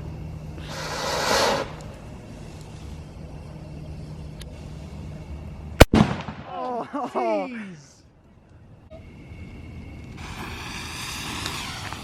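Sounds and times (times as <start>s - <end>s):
firework hissing: 0.0s - 5.5s, 9.9s - 12.0s
steady low hum: 0.0s - 12.0s.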